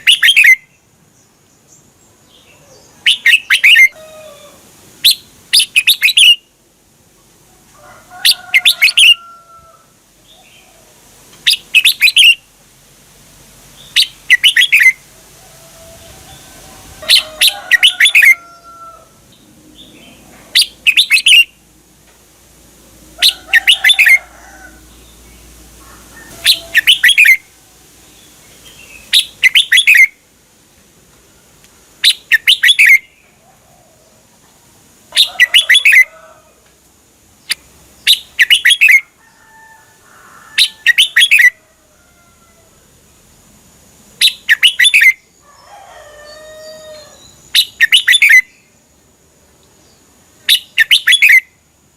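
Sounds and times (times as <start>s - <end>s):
bulbul singing: 0.0s - 0.9s, 1.7s - 4.0s, 11.4s - 12.5s, 13.8s - 15.0s, 17.0s - 18.7s, 19.3s - 21.6s, 23.2s - 24.3s, 26.4s - 30.2s, 32.0s - 33.4s, 37.4s - 39.1s, 40.6s - 41.6s, 44.2s - 45.3s, 47.0s - 48.7s, 49.8s - 51.6s.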